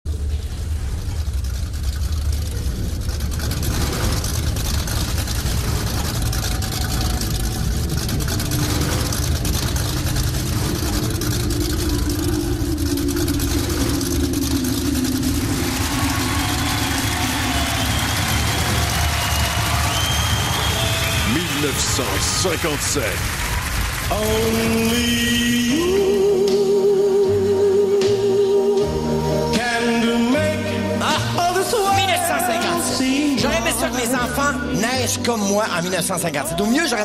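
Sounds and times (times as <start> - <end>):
car engine idling: 0.0 - 37.0
held low tone: 2.4 - 19.3.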